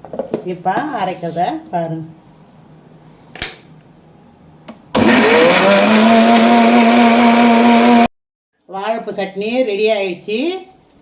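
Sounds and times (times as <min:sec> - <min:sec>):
mixer grinder motor whining: 0:05.0 - 0:08.1.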